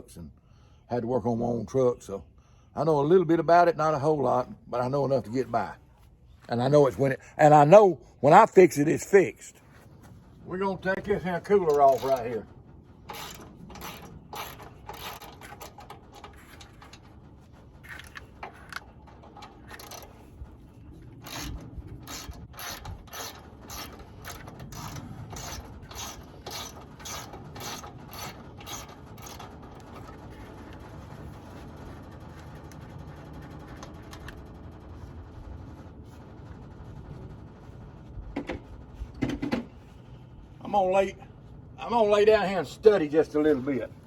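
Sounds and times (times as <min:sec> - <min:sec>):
ratchet wrench clicking: 0:13.1 - 0:15.9, 0:19.7 - 0:20.1, 0:21.2 - 0:29.5.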